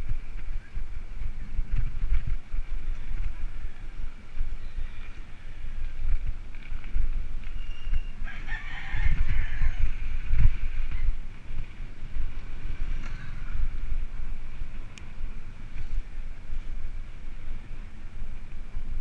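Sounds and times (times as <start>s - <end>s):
wind noise on microphone: 0.0s - 19.0s
rooster crowing: 8.2s - 10.1s.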